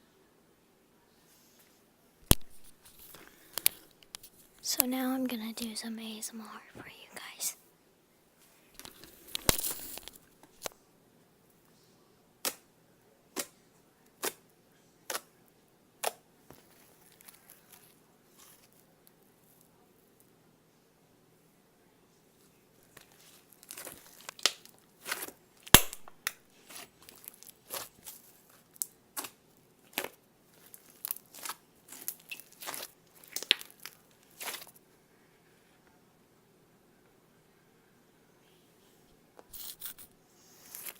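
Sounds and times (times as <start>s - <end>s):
faint slime crackling: 2.2s - 7.6s, 8.6s - 10.7s, 16.0s - 18.9s, 22.8s - 34.8s, 39.5s - 40.9s
slime popping: 23.6s - 34.7s.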